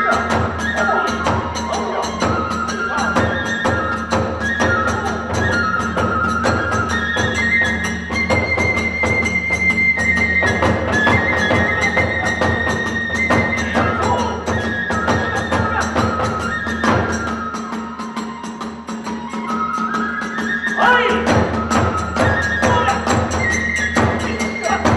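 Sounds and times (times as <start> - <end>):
bamboo flute melody: 0.0 - 24.9
drum beat: 10.4 - 17.1, 20.8 - 24.9.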